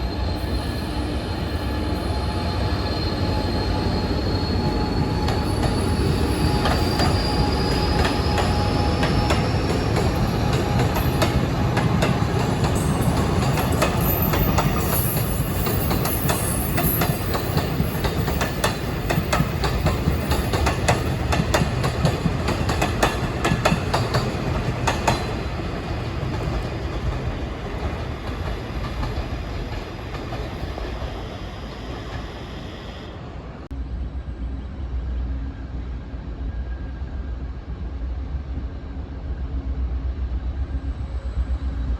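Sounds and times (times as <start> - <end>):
faint high wheel squeal: 0.0 - 20.6
train rumbling on rails: 0.0 - 41.9.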